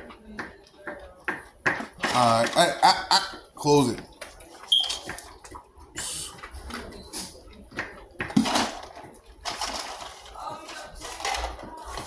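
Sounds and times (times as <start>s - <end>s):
plastic knocks and clatter: 7.7s - 10.2s.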